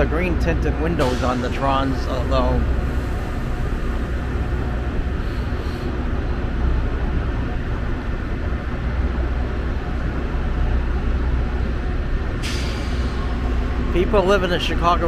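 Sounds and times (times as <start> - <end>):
diesel locomotive idling: 0.0 - 15.0.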